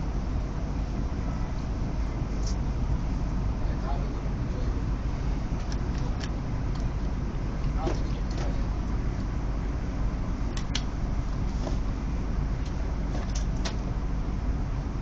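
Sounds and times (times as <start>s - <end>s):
train cabin rumble: 0.0s - 15.0s
sharp clicks: 10.5s - 10.9s.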